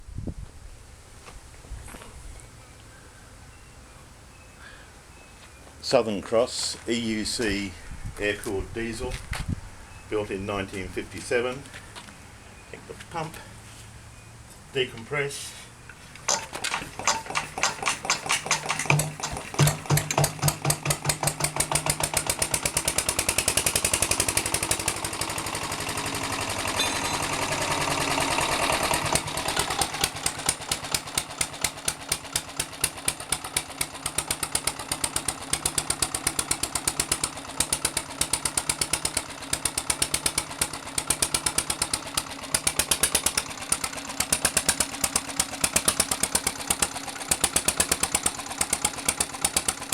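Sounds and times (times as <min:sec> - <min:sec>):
diesel engine starting and running: 0:15.7 - 0:49.9.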